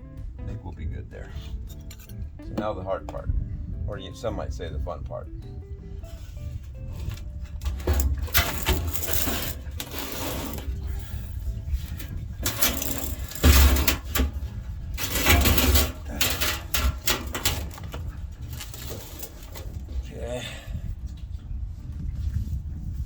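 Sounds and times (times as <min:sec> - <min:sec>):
metal tools clinking and scraping: 0:01.3 - 0:02.2, 0:06.1 - 0:20.2.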